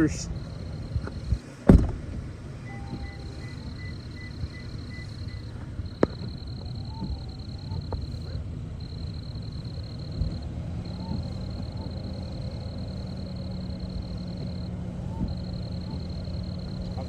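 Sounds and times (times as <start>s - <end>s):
faint high whine: 0.0s - 1.5s, 2.6s - 17.0s
vehicle driving low rumble: 0.0s - 17.0s.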